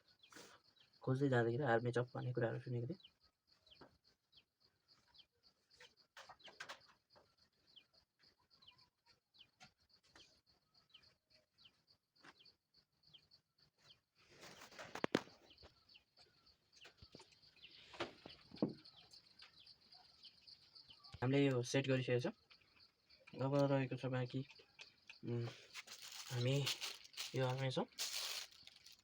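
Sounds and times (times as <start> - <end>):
birds chirping: 0.0 - 29.0
drill parts clattering: 25.6 - 29.0.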